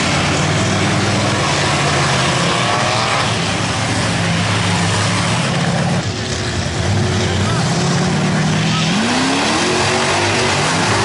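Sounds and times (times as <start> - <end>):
truck engine revving hard: 0.0 - 11.0.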